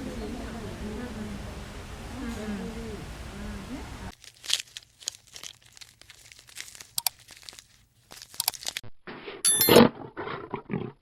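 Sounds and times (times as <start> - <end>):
animal chewing and tearing food: 4.1 - 8.8.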